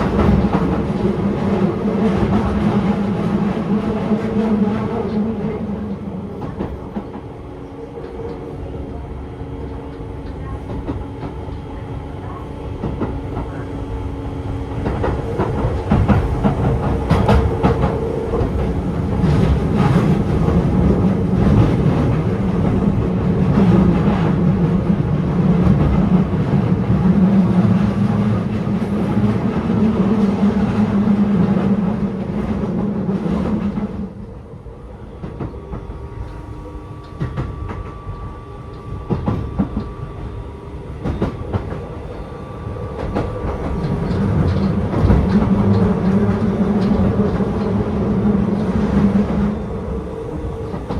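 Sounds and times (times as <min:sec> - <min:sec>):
train wheels rumbling on rails: 0:00.0 - 0:50.9
rail-joint clicks: 0:09.6 - 0:13.8, 0:14.7 - 0:25.0, 0:35.2 - 0:40.3, 0:41.0 - 0:42.2, 0:42.9 - 0:49.5.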